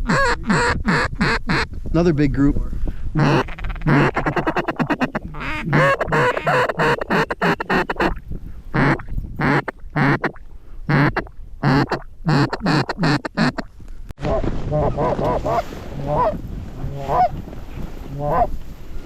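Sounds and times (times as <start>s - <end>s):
goose honking and clucking: 0.0s - 1.7s, 3.2s - 8.2s, 8.8s - 13.7s, 14.8s - 17.4s, 18.1s - 18.5s
wind rumble on microphone: 0.0s - 12.3s, 13.6s - 19.0s.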